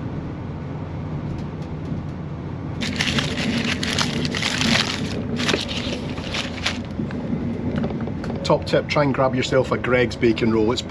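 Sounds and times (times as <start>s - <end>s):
crackling rustling noise: 2.8s - 7.2s.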